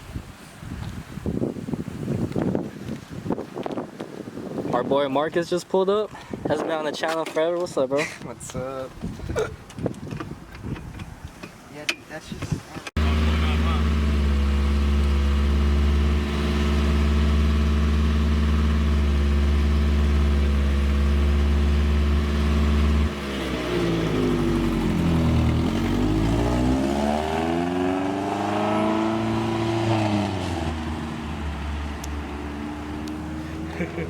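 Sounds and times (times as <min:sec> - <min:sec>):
car engine idling with exhaust leak: 0:13.0 - 0:27.0.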